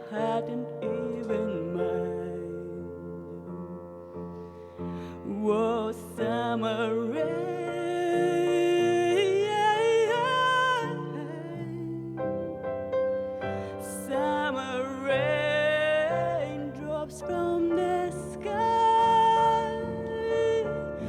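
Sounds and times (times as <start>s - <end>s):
person singing wordless line: 0.0s - 3.9s, 13.5s - 21.0s.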